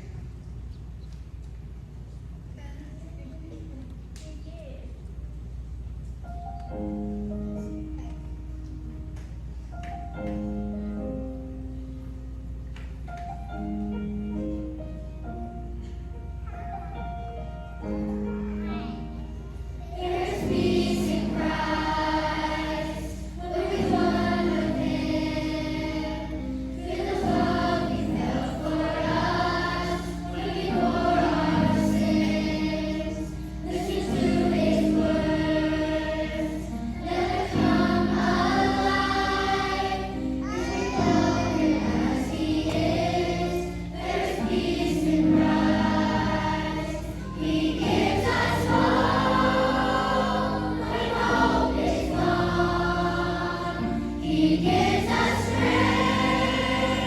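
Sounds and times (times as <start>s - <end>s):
choir of young voices singing: 19.8s - 57.0s.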